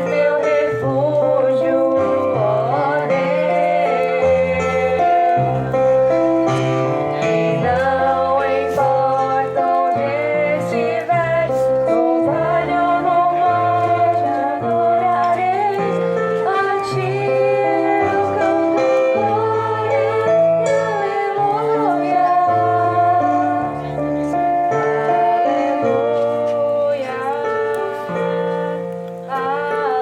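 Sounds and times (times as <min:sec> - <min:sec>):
woman singing a slow devotional song: 0:00.0 - 0:05.6, 0:07.6 - 0:24.0, 0:25.0 - 0:30.0
instrumental accompaniment: 0:00.0 - 0:30.0.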